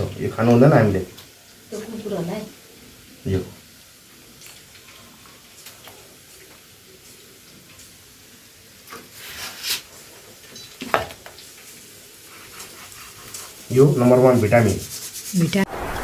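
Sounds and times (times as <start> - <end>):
food frying in a pan: 0.0 - 15.7
utensil scraping: 8.9 - 10.1, 12.2 - 15.7
utensil clinking and stirring: 9.7 - 15.6.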